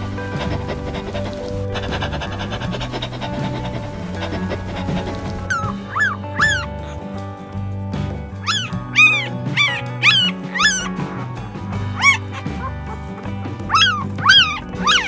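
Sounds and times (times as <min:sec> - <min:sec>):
background music: 0:00.0 - 0:15.0
dog yelping: 0:05.4 - 0:07.1, 0:08.4 - 0:11.1, 0:11.9 - 0:15.0.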